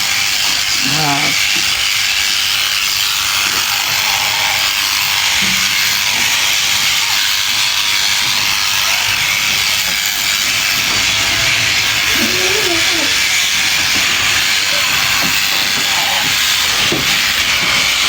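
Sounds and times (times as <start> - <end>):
electric sheep shears buzzing: 0.0 - 18.0.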